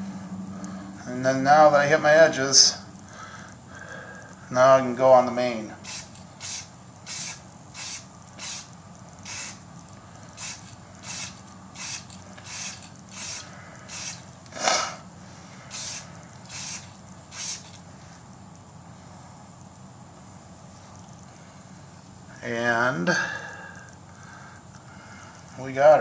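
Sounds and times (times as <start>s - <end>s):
spray can hissing: 5.8s - 9.6s, 10.4s - 14.8s.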